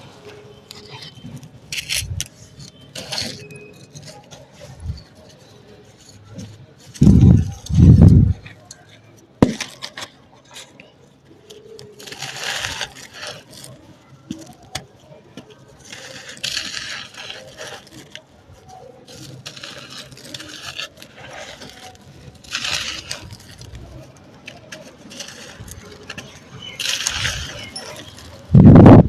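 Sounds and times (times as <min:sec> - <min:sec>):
sand-cement pieces crunching by hand: 0:19.0 - 0:28.8.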